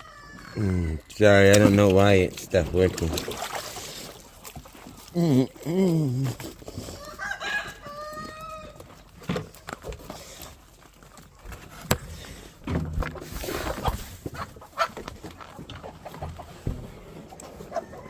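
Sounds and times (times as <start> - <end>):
rooster crowing: 0.0 - 1.0, 7.0 - 8.8.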